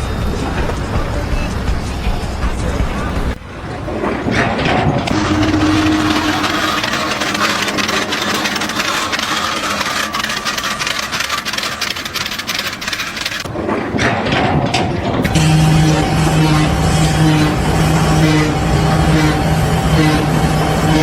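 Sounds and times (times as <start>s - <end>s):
engine running: 0.0s - 21.0s
rattle of rapid clicks: 4.6s - 15.4s.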